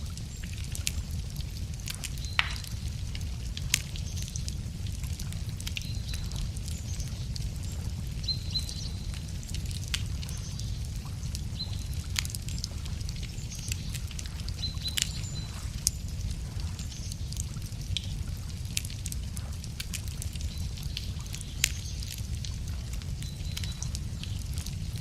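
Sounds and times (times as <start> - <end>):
campfire crackling and popping: 0.0 - 25.0
birds chirping: 2.1 - 2.8, 5.8 - 17.4, 20.3 - 25.0.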